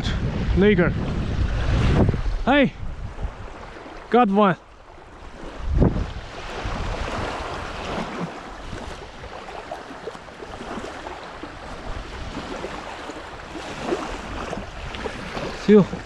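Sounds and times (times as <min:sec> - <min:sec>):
wind buffeting microphone: 0:00.0 - 0:16.0
small waves lapping shoreline: 0:03.0 - 0:16.0.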